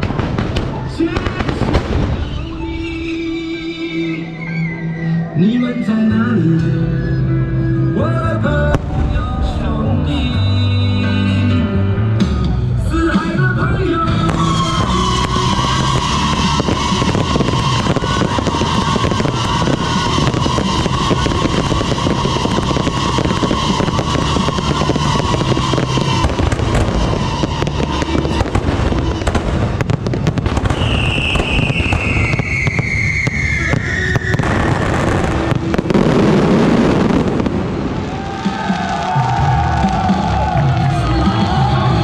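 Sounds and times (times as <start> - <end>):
fireworks bangs and crackling: 0.0 - 4.2, 8.7 - 11.0, 13.0 - 42.0
firework whistle falling: 1.6 - 5.7, 14.2 - 40.6.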